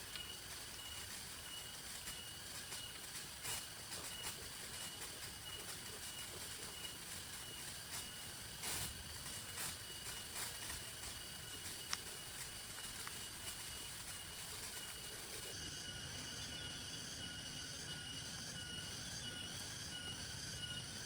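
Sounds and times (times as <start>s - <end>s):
rain hiss: 0.0s - 15.6s.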